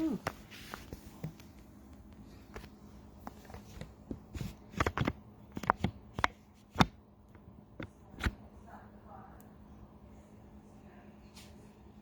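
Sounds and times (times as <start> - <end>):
faint steady hum: 0.0 - 12.0
clicks and knocks of objects handled: 0.7 - 8.4.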